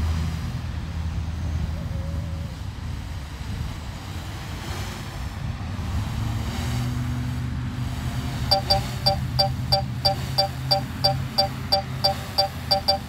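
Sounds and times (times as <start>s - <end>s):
low steady hum: 8.5s - 13.0s
sharp electronic beeps: 8.5s - 13.0s.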